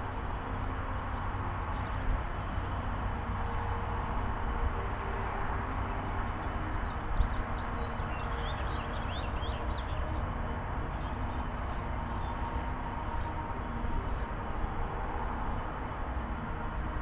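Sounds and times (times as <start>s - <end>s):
low outdoor rumble: 0.0s - 17.0s
small birds chirping: 10.9s - 14.3s.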